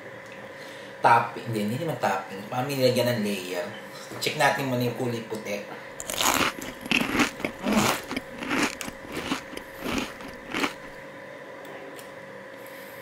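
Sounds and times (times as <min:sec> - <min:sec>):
faint steady hum: 0:00.0 - 0:13.0
wet chewing noises: 0:06.0 - 0:11.0.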